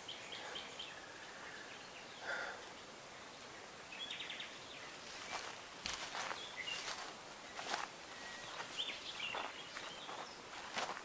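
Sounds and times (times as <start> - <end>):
footsteps through dry undergrowth: 4.9 - 11.0.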